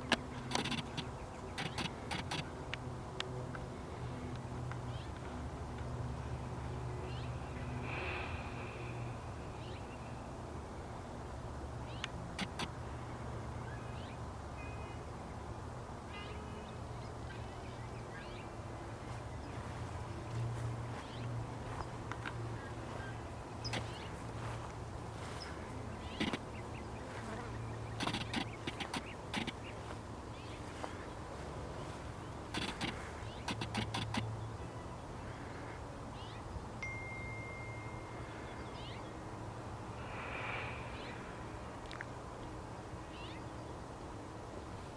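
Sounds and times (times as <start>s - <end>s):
small birds chirping: 0.0s - 2.4s, 16.2s - 36.6s, 43.0s - 43.8s.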